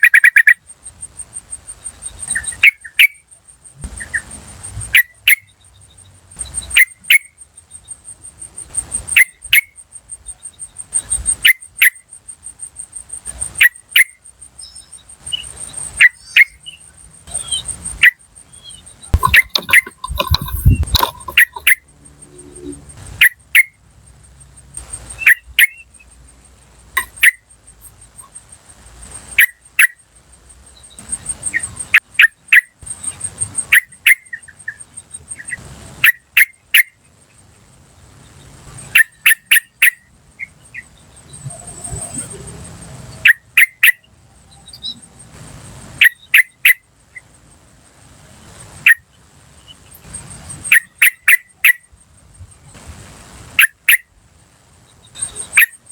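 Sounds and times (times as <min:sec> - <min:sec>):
bird calling sharp notes: 0:00.0 - 0:00.6, 0:15.2 - 0:23.7.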